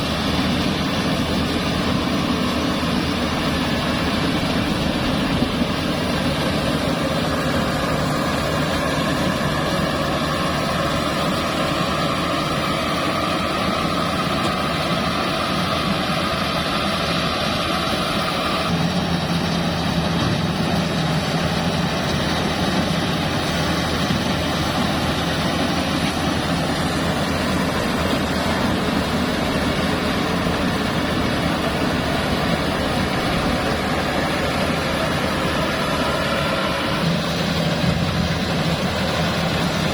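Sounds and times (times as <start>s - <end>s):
rice thresher engine drone: 0.0s - 39.9s.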